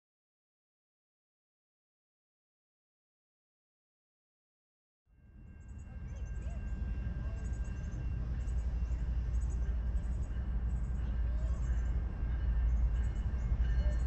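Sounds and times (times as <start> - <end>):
train rumbling: 5.1 - 14.0.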